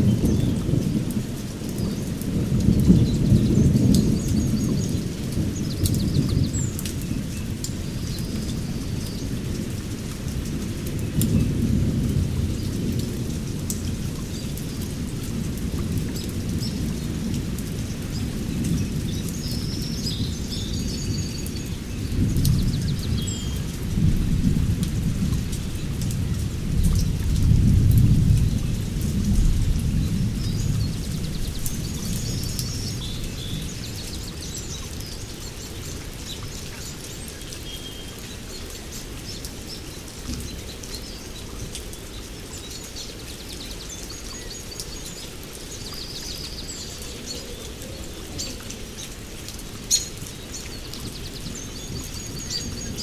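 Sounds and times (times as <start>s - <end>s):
steady rain: 0.0s - 53.0s
thunder rumbling: 22.0s - 34.5s.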